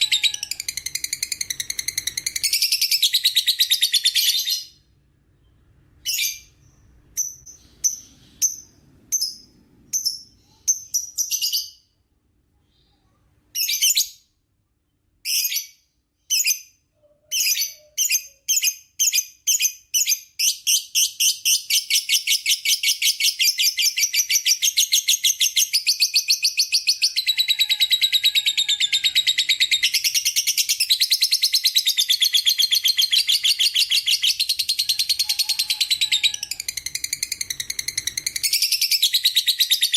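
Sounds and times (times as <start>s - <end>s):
lovebird chattering and trilling: 0.0s - 4.8s, 17.3s - 39.9s.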